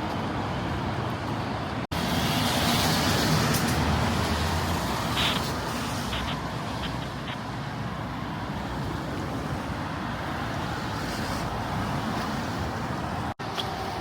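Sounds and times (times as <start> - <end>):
low hum of road traffic: 0.0 - 14.0
rain hissing on wet streets: 2.0 - 7.2.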